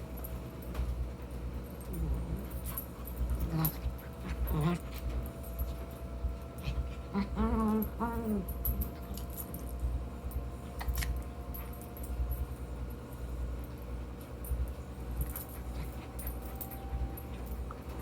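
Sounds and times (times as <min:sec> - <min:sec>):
low hum: 0:00.0 - 0:18.0
puppy whimpering: 0:06.9 - 0:08.6.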